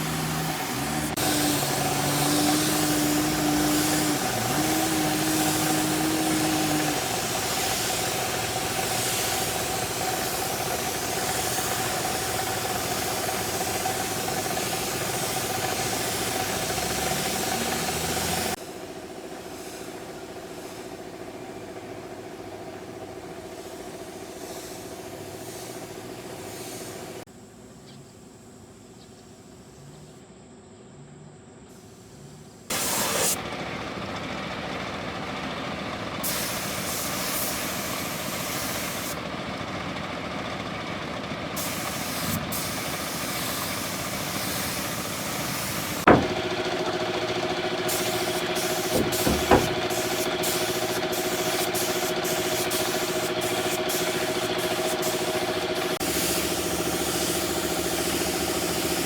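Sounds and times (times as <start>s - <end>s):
car engine idling: 0.0s - 27.7s, 39.0s - 59.0s
sharp knock: 46.1s - 46.6s, 48.9s - 49.9s.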